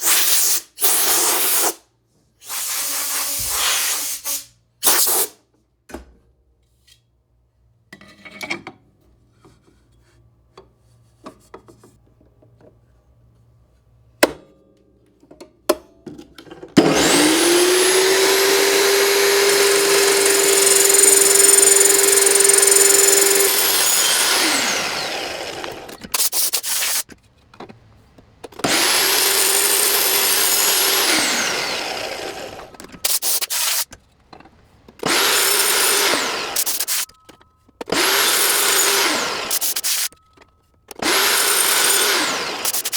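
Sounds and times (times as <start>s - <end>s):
electric power saw cutting: 16.8s - 27.1s, 28.6s - 33.9s, 35.0s - 37.1s, 37.9s - 40.2s, 40.9s - 42.9s.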